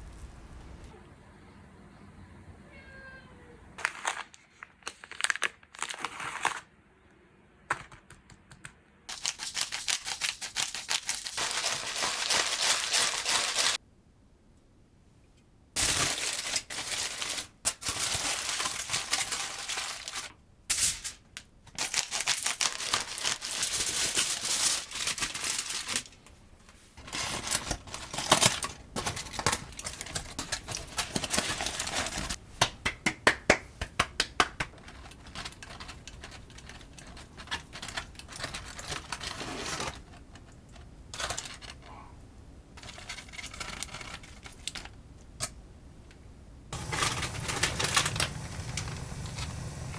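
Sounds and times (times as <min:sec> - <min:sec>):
scattered kitchen noises: 0:07.8 - 0:13.8, 0:15.8 - 0:42.1, 0:42.8 - 0:45.6, 0:46.7 - 0:49.9.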